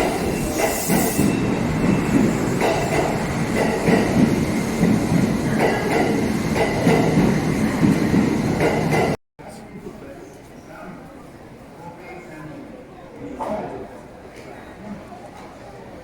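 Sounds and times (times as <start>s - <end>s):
train rumble: 0.0s - 9.2s
train wheels clacking on rails: 0.0s - 9.2s.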